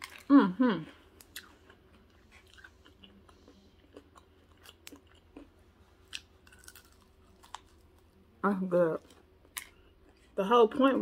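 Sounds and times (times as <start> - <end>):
chewing fried chicken: 1.0 - 8.2.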